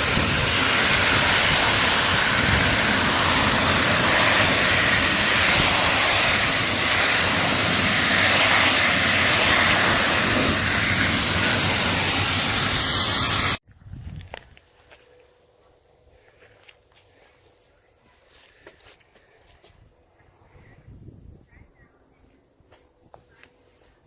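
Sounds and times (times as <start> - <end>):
pressure washer spraying water: 0.0 - 13.6.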